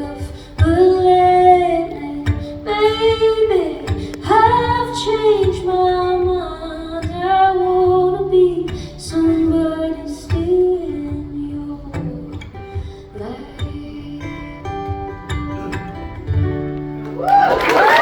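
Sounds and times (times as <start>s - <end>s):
woman singing: 0.0s - 15.3s
strummed acoustic guitar: 0.0s - 17.2s.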